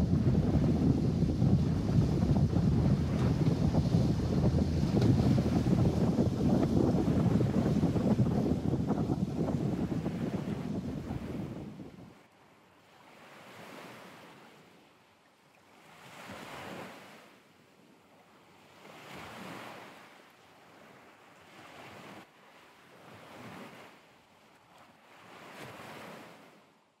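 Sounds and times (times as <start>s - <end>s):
waves washing: 0.0s - 12.2s.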